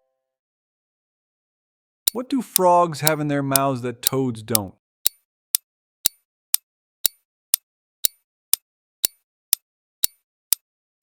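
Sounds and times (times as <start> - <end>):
clock ticking: 2.1 - 5.2, 6.0 - 10.6.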